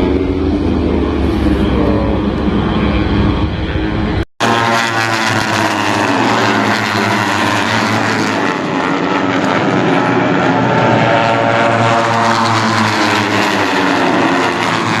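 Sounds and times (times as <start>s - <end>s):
racing motorcycles at high revs: 4.4s - 15.0s.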